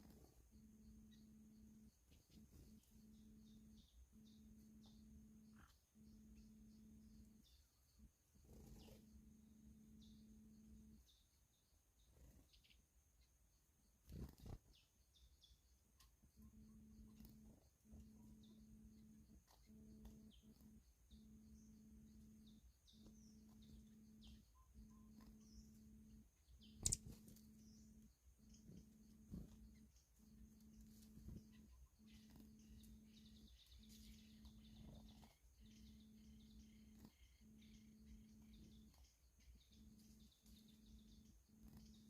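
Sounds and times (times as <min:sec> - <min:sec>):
faint bird chirps: 0:00.0 - 0:42.0
steady low hum: 0:00.0 - 0:42.0
sharp click: 0:26.8 - 0:27.3.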